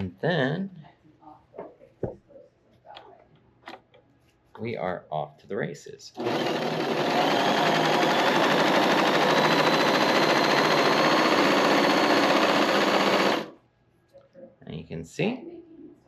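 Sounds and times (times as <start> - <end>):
sewing machine whirring: 6.2 - 13.6.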